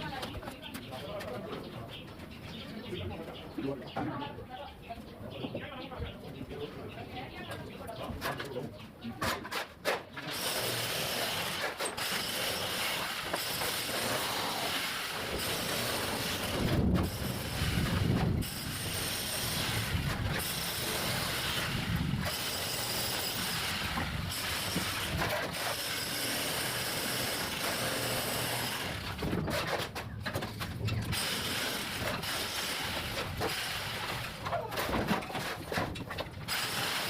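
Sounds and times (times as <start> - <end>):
excavator clatter and rattle: 7.4 - 37.0.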